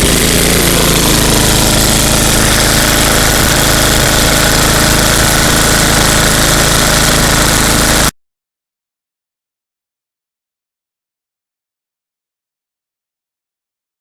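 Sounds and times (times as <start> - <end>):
snowblower engine running: 0.0 - 8.1.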